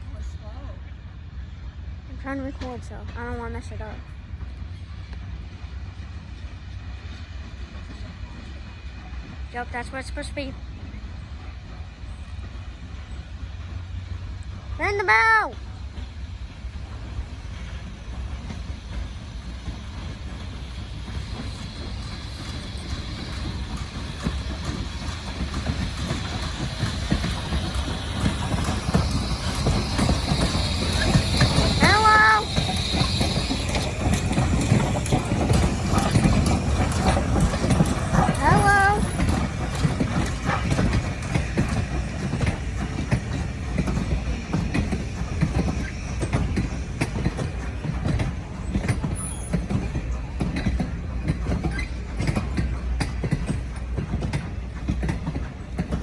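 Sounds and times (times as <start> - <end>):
train rumbling past: 0.0 - 56.0
wheels clicking over rail joints: 15.4 - 56.0
high squeal: 28.2 - 37.2.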